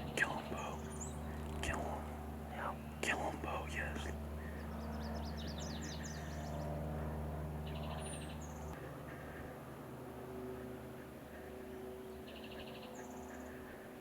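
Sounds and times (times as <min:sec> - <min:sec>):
songbirds chirping: 0:00.0 - 0:08.8
low steady hum: 0:00.0 - 0:11.5.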